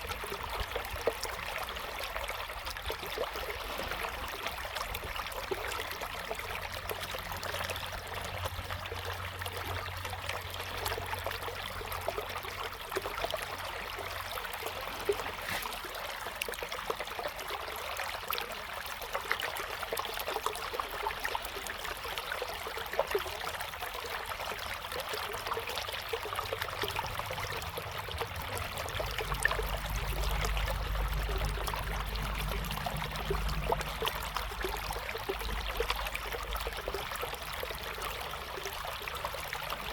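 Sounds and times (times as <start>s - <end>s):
river water flowing: 0.0s - 39.9s
low rumble: 27.0s - 37.1s.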